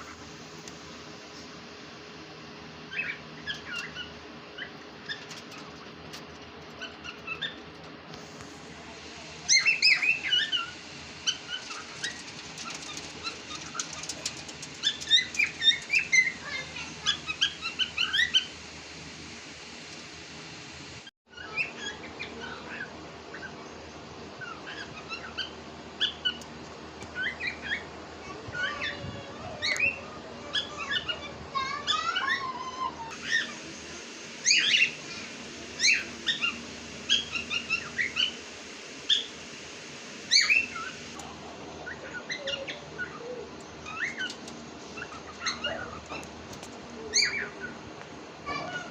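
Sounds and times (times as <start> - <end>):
cockatiels chirping and whistling: 2.9 - 5.8, 6.7 - 7.6, 9.5 - 18.5, 27.2 - 27.8, 34.4 - 35.0, 35.8 - 38.4, 39.1 - 39.4, 40.3 - 41.0, 41.9 - 43.2, 43.8 - 44.4, 45.0 - 46.0, 47.1 - 47.8.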